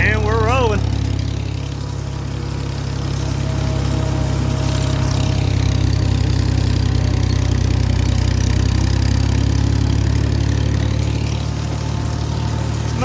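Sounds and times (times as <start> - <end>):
tractor engine humming: 0.0 - 13.0.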